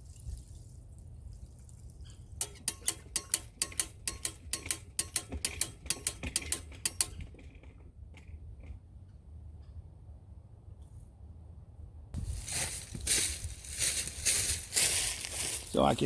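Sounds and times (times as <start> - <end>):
pressure switch clicking rapidly: 2.4 - 7.2.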